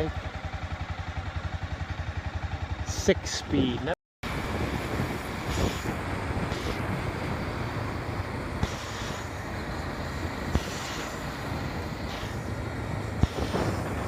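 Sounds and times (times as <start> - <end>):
motorcycle road noise: 0.0 - 14.0
wind buffeting microphone: 4.2 - 14.0.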